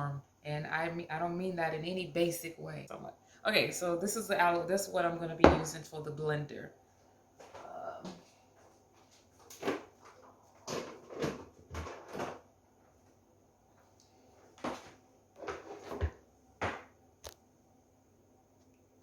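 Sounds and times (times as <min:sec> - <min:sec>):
kitchen containers and utensils clattering: 0:09.5 - 0:12.4.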